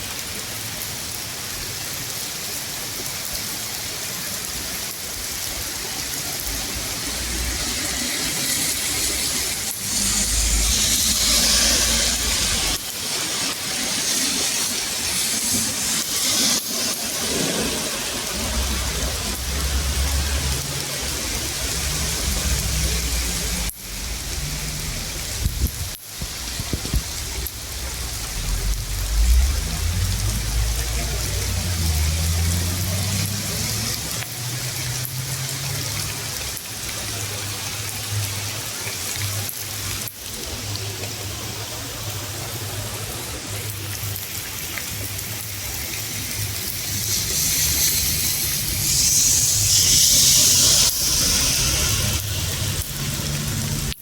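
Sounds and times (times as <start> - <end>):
rain falling steadily: 0.0 - 54.0
low rumble: 18.2 - 32.5.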